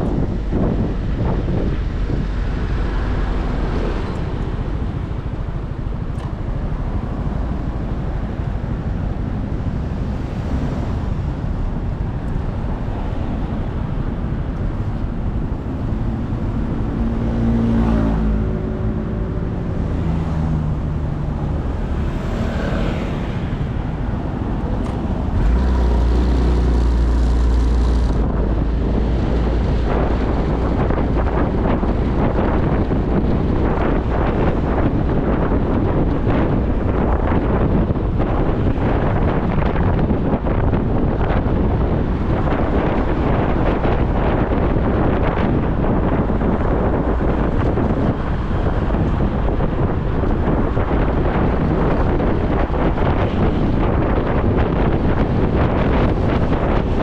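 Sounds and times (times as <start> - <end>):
low wind rumble: 0.0 - 57.0
wind rush on microphone: 0.0 - 57.0
motorcycle engine: 15.1 - 28.5.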